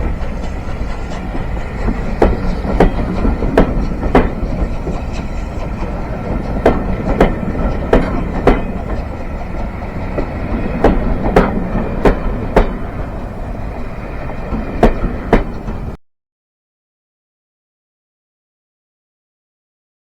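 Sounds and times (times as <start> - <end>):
train wheels over rail joints: 0.0 - 16.0.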